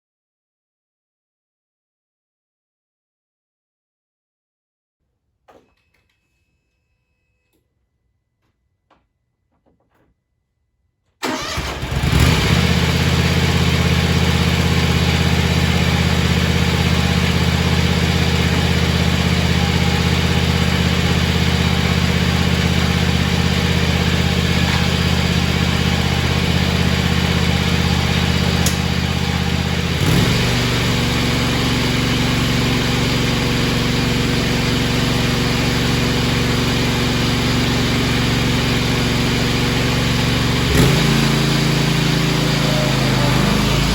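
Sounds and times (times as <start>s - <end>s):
tractor engine starting and running: 11.2s - 43.9s.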